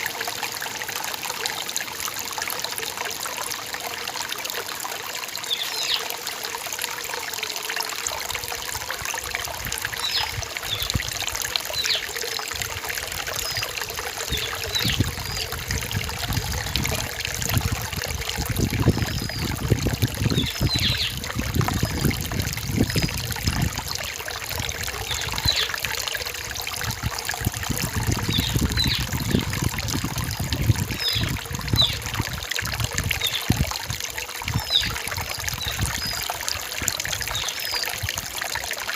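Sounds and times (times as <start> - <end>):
stream trickling over rocks: 0.0 - 38.9
high chirping bird calls: 20.3 - 21.2.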